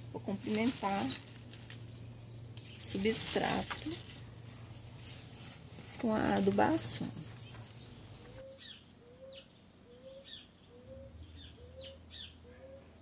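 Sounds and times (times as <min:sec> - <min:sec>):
rustling: 0:00.1 - 0:08.4
birds chirping: 0:00.2 - 0:05.0, 0:06.1 - 0:13.0.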